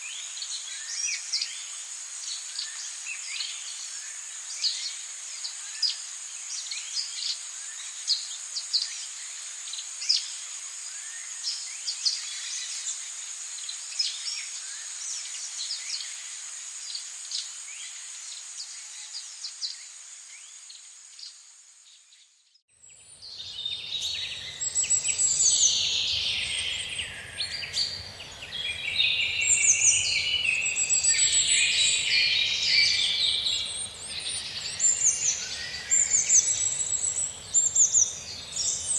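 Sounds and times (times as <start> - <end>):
chorus of bird song: 22.8 - 38.9
short bird chirps: 23.2 - 38.9.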